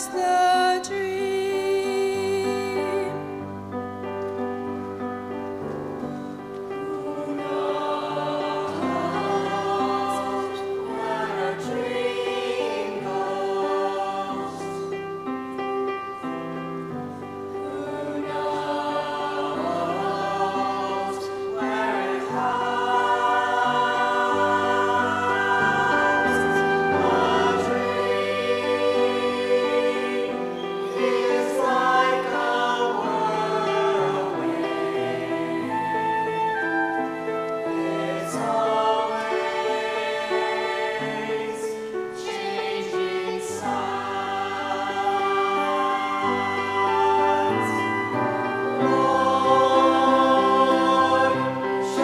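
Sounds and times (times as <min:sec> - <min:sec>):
choir singing with instruments: 0:00.0 - 0:52.0.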